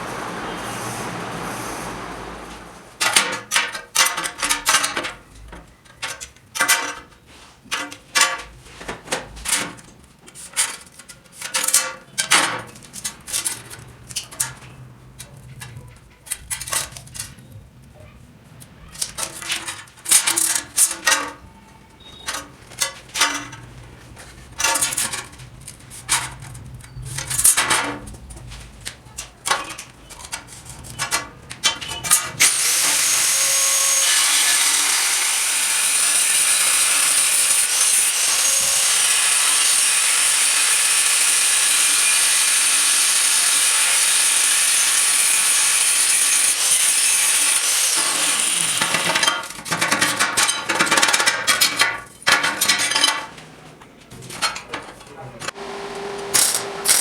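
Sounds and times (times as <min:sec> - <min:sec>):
metal parts clanking: 0:03.0 - 0:17.4, 0:22.2 - 0:28.2, 0:48.1 - 0:53.4, 0:54.1 - 0:55.2
power tool running on metal: 0:32.4 - 0:49.4, 0:55.5 - 0:57.0.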